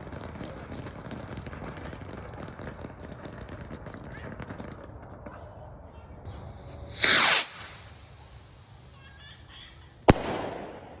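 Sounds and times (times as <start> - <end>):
firework rushing hiss: 6.3 - 11.0
firework bang echoing: 6.9 - 8.0, 10.1 - 11.0.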